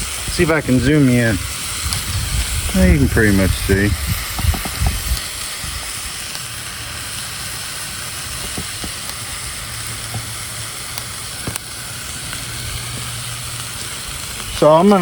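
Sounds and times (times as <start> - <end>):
greens sizzling in oil: 0.0 - 15.0
faint oil pops: 4.3 - 5.2, 11.4 - 11.7.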